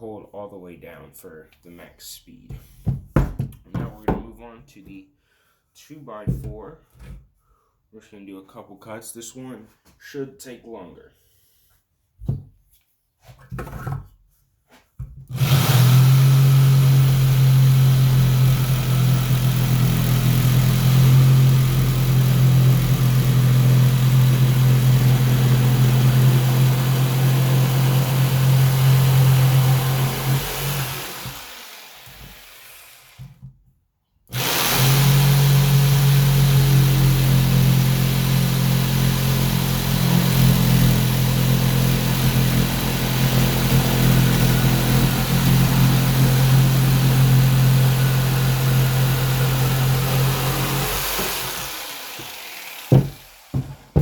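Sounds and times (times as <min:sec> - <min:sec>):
jigsaw cutting wood: 0:15.3 - 0:33.4, 0:34.3 - 0:54.0.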